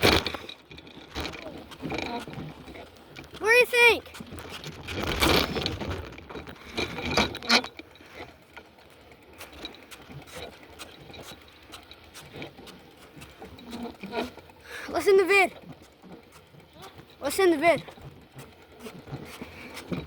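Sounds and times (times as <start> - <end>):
rustling: 0.0 - 8.4.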